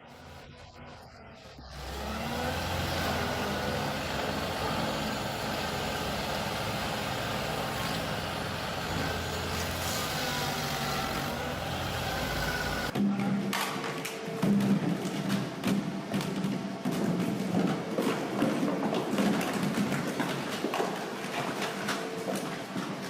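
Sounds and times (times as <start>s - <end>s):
heavy machinery engine running: 1.6s - 13.0s.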